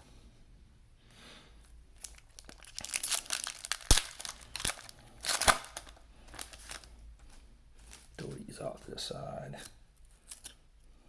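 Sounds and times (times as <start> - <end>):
foil wrapper tearing and crinkling: 2.0 - 6.9, 7.8 - 8.4, 10.2 - 10.6
sharp foil snaps: 2.0 - 6.9, 9.6 - 10.6.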